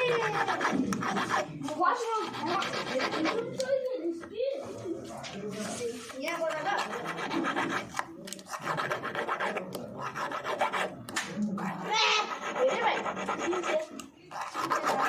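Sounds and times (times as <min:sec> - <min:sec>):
metal file rasping on brass: 0:00.0 - 0:03.5, 0:06.4 - 0:15.0.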